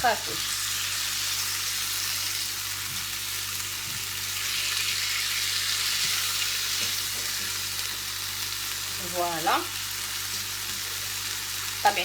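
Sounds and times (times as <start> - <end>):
shrimp sizzling in a pan: 0.0 - 12.0.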